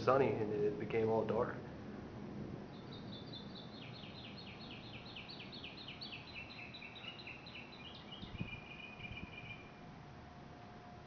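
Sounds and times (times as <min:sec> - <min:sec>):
steady background hiss: 0:00.0 - 0:11.0
songbird chirping and trilling: 0:02.7 - 0:09.8.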